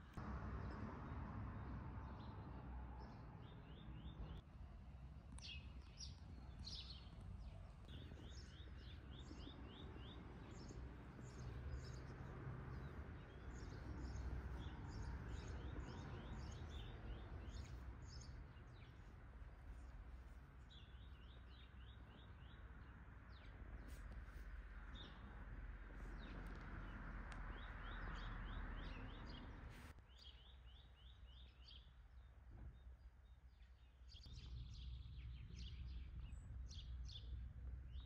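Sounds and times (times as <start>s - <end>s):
songbirds singing: 0.0s - 4.4s, 5.3s - 38.0s
low outdoor rumble: 0.0s - 29.9s.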